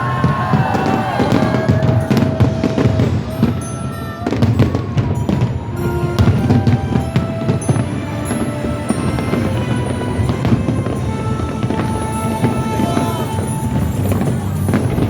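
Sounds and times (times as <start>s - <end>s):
fireworks bangs and crackles: 0.0s - 15.0s
loud music playing: 0.0s - 15.0s.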